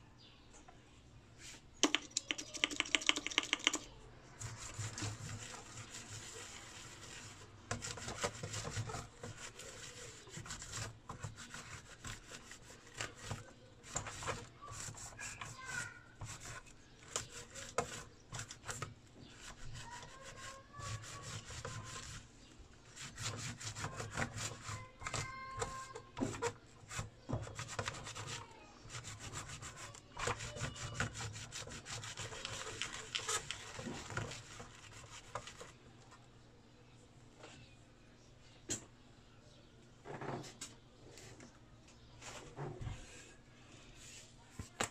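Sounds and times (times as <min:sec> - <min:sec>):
scratchy scrubbing strokes: 0:04.4 - 0:25.9, 0:26.8 - 0:35.8.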